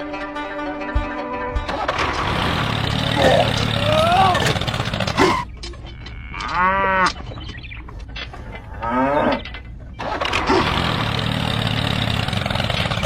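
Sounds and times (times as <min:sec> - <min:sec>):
cow mooing: 0:02.9 - 0:07.2, 0:08.6 - 0:09.5.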